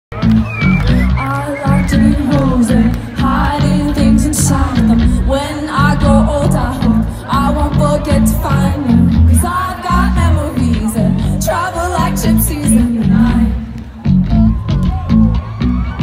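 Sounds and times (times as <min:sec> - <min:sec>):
pop band playing: 0:00.1 - 0:16.0
pulsing bass line: 0:00.1 - 0:16.0
woman singing: 0:01.1 - 0:13.8.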